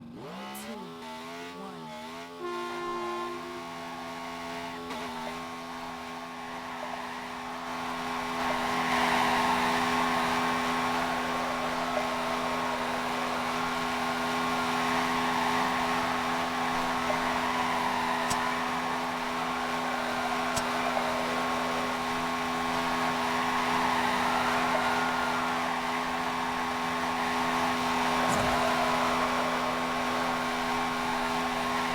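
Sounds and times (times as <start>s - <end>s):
rushing whirring noise: 5.8s - 31.9s
motor humming: 7.4s - 31.9s.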